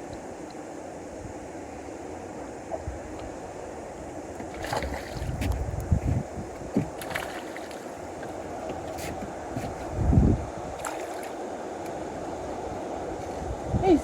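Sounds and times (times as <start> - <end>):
wind buffeting microphone: 4.4 - 11.1, 12.4 - 14.0.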